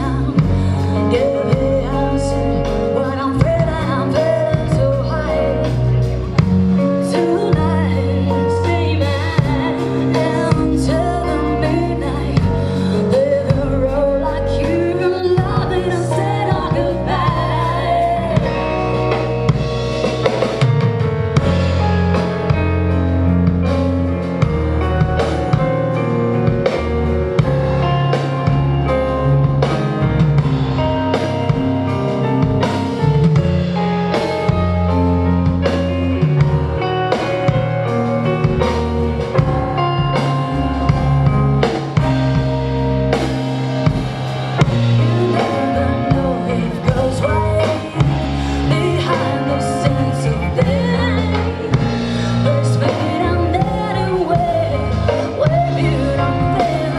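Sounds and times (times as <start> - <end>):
bass and guitar: 0.0 - 56.9
drum kit: 0.0 - 56.9
person singing: 6.8 - 19.5, 44.6 - 56.9.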